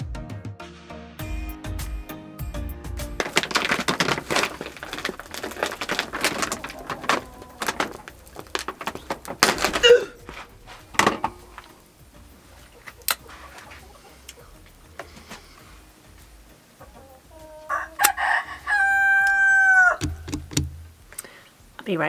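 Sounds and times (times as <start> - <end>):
woven sack rustling: 3.2 - 16.5.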